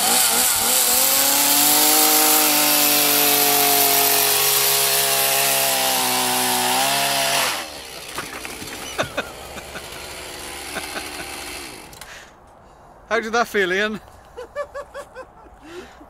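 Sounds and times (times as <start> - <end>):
chainsaw cutting: 0.0 - 12.3.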